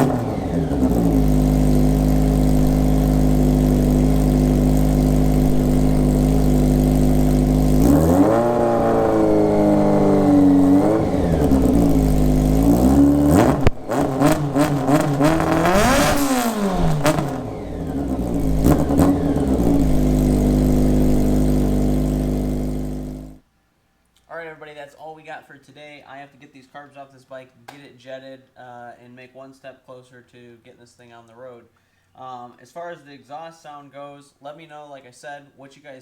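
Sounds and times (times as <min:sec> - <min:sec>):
motorcycle engine revving: 0:00.0 - 0:23.4.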